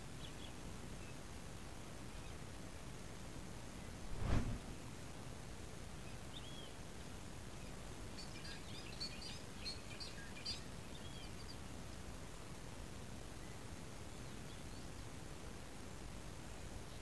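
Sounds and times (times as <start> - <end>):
low outdoor background noise: 0.0 - 17.0
loud rush of noise: 4.1 - 4.8.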